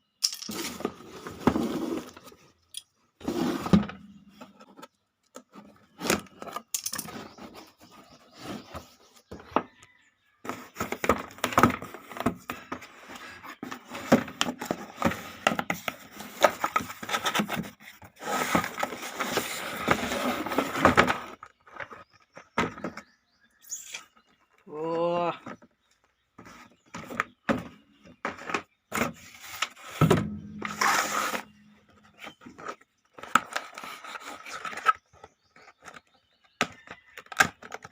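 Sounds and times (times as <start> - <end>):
cardboard and plastic rustling: 0.5 - 2.6, 10.5 - 23.1, 25.4 - 37.9.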